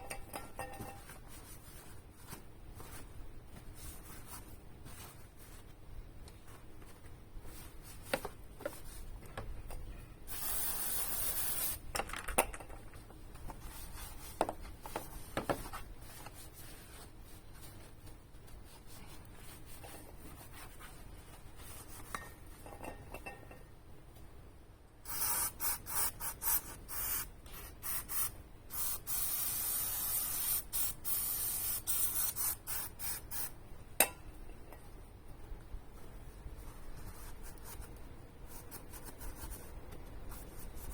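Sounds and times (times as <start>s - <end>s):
aerosol spray can hissing: 10.3s - 11.8s, 25.1s - 33.5s.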